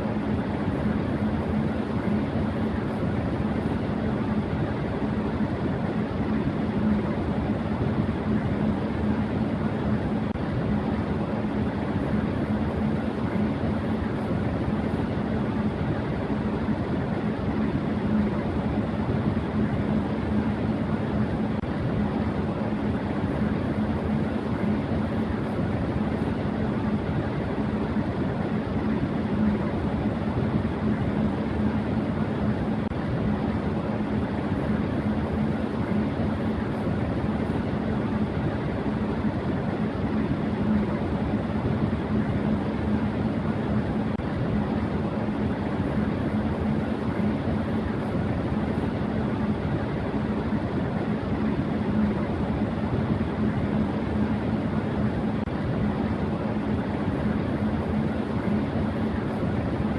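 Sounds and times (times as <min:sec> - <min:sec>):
electric fan running: 0:00.0 - 0:59.9.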